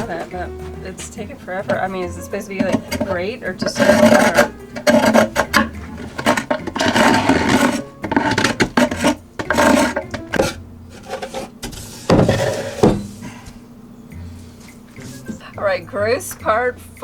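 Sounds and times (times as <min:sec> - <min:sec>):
scraper scraping wooden box: 0:02.6 - 0:13.0.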